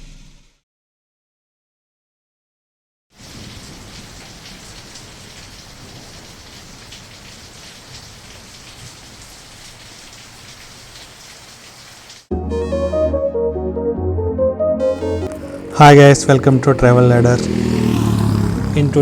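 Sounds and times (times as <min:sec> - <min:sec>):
heavy rain falling: 0:03.2 - 0:12.3, 0:14.9 - 0:19.0.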